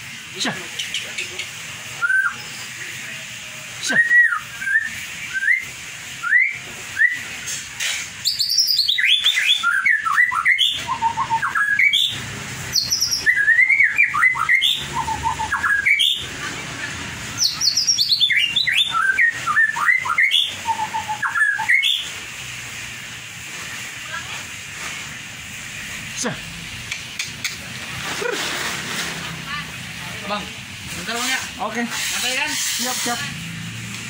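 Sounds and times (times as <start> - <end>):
bird singing whistles and trills: 2.0 - 2.7, 3.9 - 7.3, 8.2 - 16.2, 17.4 - 22.1.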